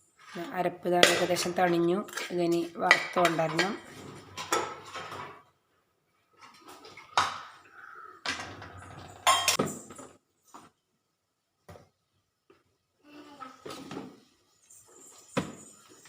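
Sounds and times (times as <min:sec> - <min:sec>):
dishes and utensils clinking: 0:01.0 - 0:05.4, 0:08.3 - 0:10.0.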